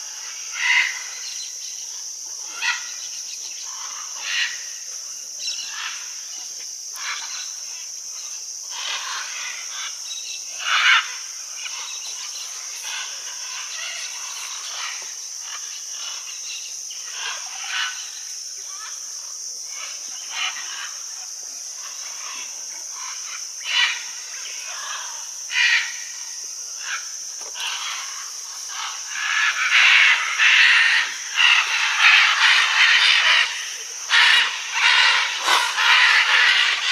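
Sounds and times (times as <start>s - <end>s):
steady high hiss: 0.0s - 36.9s
macaws squawking: 26.8s - 36.9s.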